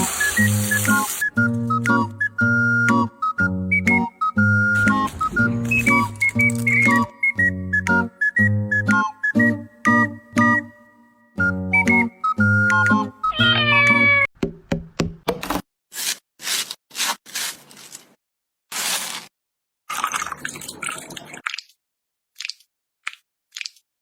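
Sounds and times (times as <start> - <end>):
short musical phrase: 4.7 - 7.1
cat meowing: 13.2 - 14.3.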